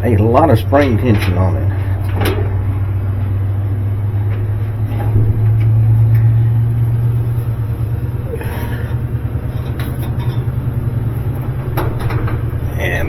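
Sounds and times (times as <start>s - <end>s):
low mechanical hum: 0.0s - 13.0s
light clicks and knocks: 8.9s - 12.7s.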